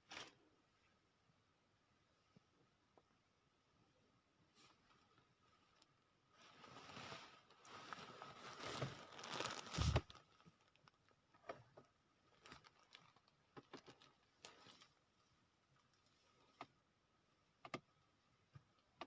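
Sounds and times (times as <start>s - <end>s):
faint rustling and crinkling: 0.0s - 1.0s, 4.4s - 17.0s.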